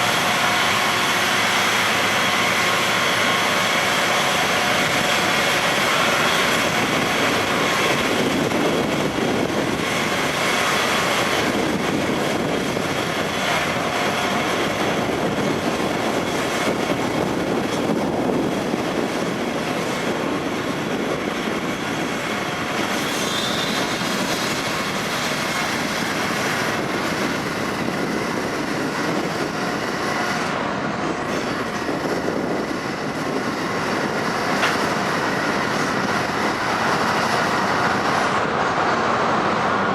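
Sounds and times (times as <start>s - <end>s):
ship engines and propellers running: 0.0s - 39.9s.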